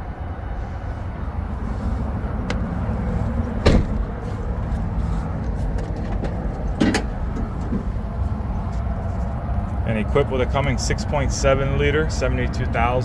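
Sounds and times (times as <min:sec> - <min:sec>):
steady low rumble: 0:00.0 - 0:13.0
heavy thumps: 0:03.6 - 0:04.2.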